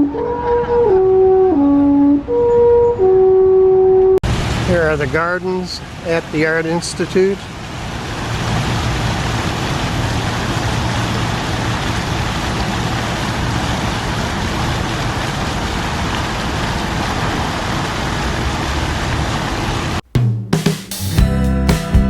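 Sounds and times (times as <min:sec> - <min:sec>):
city traffic noise: 0:04.2 - 0:20.0.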